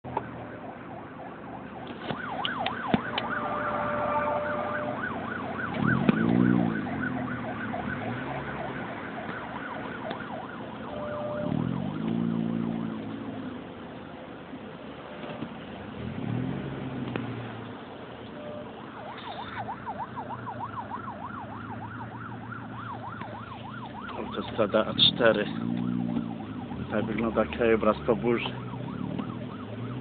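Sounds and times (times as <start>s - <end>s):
emergency vehicle siren yelping: 0.0s - 13.2s, 18.3s - 30.0s
deeper siren tone: 0.0s - 13.3s, 18.4s - 30.0s
road traffic noise: 0.0s - 30.0s.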